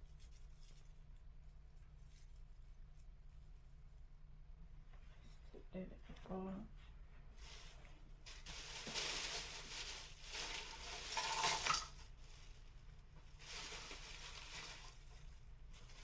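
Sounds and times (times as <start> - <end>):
decorations rustling and clinking: 7.4 - 12.6, 13.3 - 16.0.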